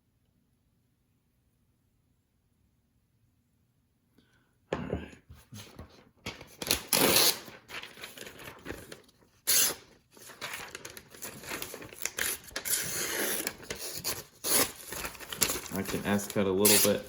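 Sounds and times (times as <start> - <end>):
paper crinkling: 5.6 - 17.0
knife slicing paper: 6.6 - 17.0.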